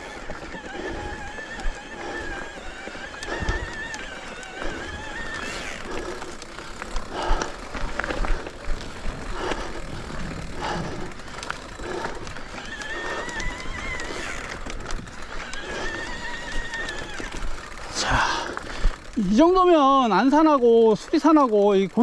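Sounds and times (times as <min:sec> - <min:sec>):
bike clattering over stones: 0:00.0 - 0:22.0
freewheel buzz: 0:00.0 - 0:22.0.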